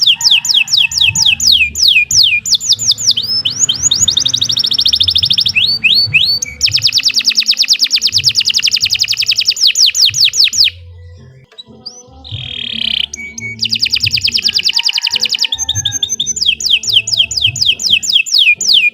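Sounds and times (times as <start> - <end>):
canary singing trills: 0.0 - 18.9.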